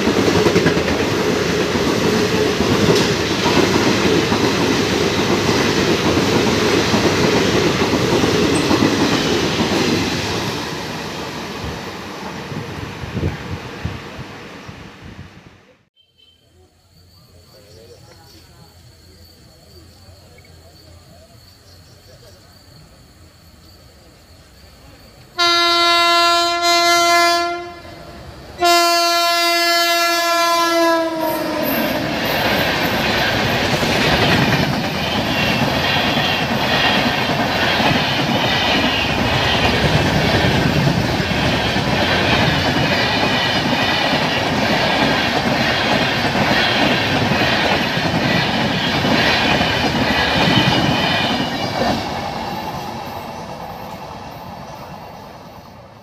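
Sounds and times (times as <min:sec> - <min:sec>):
train coaches rushing past: 0:00.0 - 0:56.0
locomotive horn blasts: 0:25.4 - 0:28.0, 0:28.6 - 0:31.8.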